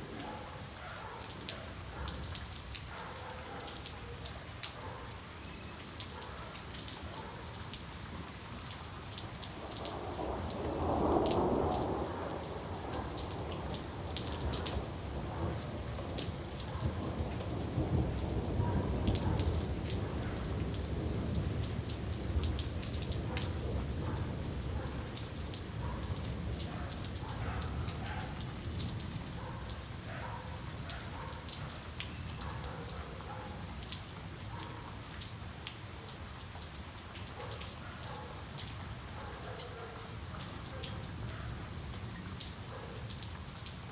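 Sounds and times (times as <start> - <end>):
rain drops ticking: 0.0 - 43.9
thunder rumbling: 9.5 - 29.2.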